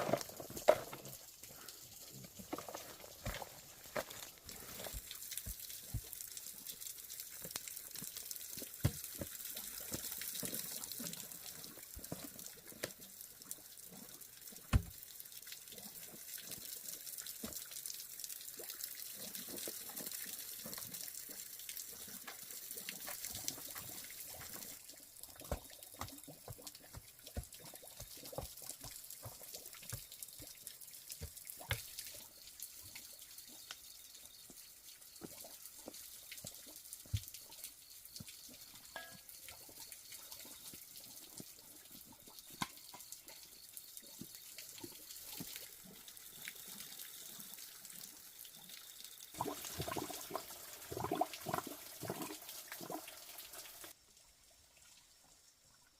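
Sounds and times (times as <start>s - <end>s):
water trickling and dripping: 0.0s - 55.9s.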